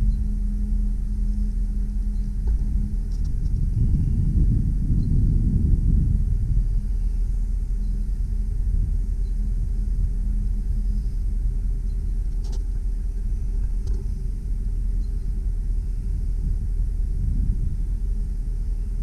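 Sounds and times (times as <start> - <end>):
truck engine rumbling: 0.0 - 19.0.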